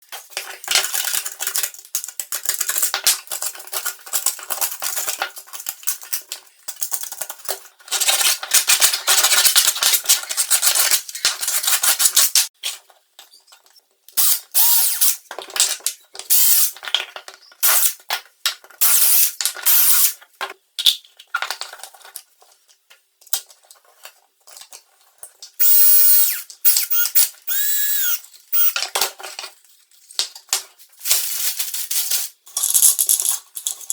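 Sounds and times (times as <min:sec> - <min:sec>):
power tools drilling and grinding plastic: 0:14.2 - 0:15.2, 0:16.3 - 0:16.7, 0:18.8 - 0:20.2, 0:25.6 - 0:28.8.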